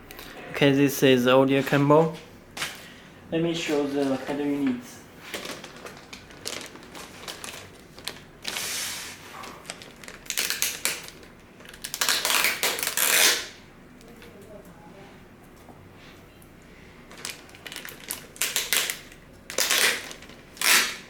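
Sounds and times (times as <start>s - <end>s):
packaging rustling and crinkling: 3.8s - 13.5s, 17.0s - 21.0s.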